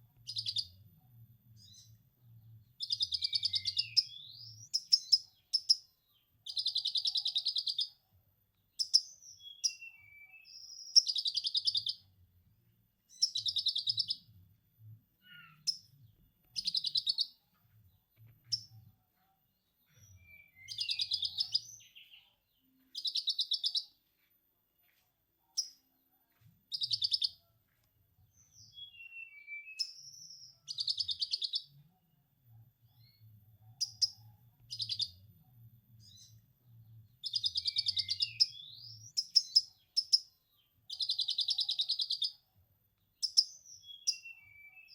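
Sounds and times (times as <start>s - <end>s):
bird trilling and chirping: 0.2s - 0.8s, 2.8s - 8.0s, 8.7s - 12.1s, 13.1s - 14.3s, 15.2s - 17.4s, 19.9s - 22.3s, 22.9s - 24.0s, 26.7s - 27.4s, 28.4s - 31.8s, 33.8s - 35.2s, 37.2s - 42.4s, 43.2s - 44.9s.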